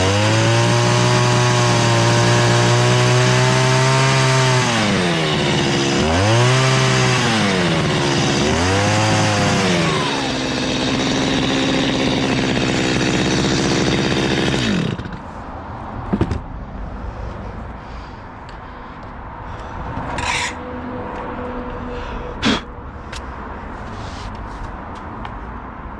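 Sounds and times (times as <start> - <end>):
chainsaw cutting log: 0.0 - 15.3
knocks on wood: 16.1 - 16.5.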